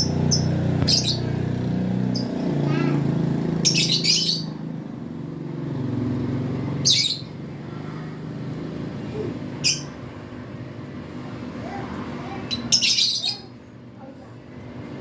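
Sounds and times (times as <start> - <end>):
lovebirds chirping shrilly: 0.0 - 1.5, 3.5 - 4.6, 6.8 - 7.4, 9.6 - 10.0, 12.5 - 13.5.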